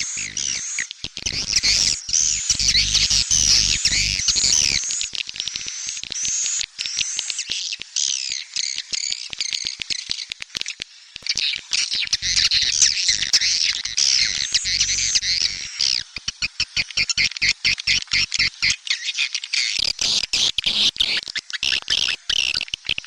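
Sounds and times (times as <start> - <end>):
swiftlets chirping and twittering: 0.0 - 10.3, 11.3 - 18.8.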